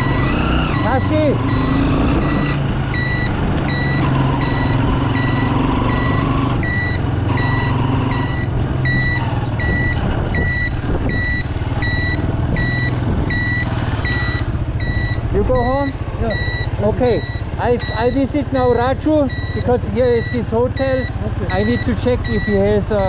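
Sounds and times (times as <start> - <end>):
vehicle warning beeper: 0.0 - 23.0
engine idling: 6.6 - 23.0.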